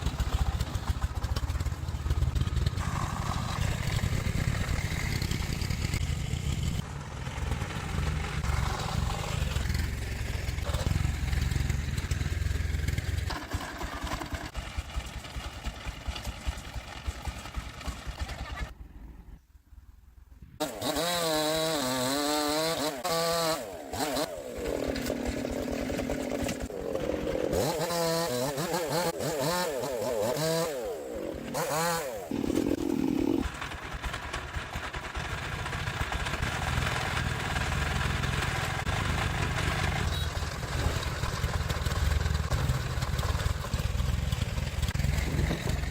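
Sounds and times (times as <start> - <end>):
engine running low: 0.0 - 18.8, 23.6 - 45.9
engine revving up and down: 2.8 - 12.2, 20.6 - 33.5.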